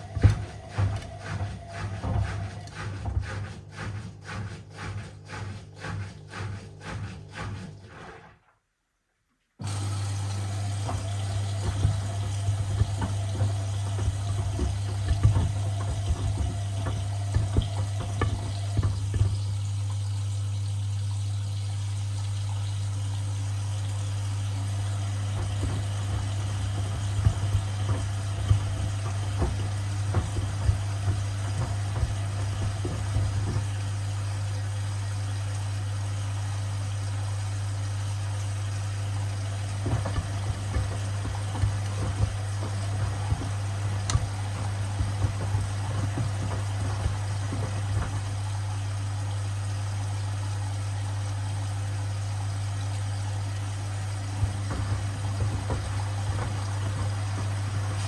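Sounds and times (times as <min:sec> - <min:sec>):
knocks in washing machine: 0:00.0 - 0:07.7, 0:09.6 - 0:19.9, 0:23.8 - 0:34.8, 0:39.0 - 0:50.3, 0:53.3 - 0:58.0
washing machine motor hum: 0:00.0 - 0:08.5, 0:09.6 - 0:58.0
water sloshing in drum: 0:00.0 - 0:08.5, 0:09.6 - 0:58.0.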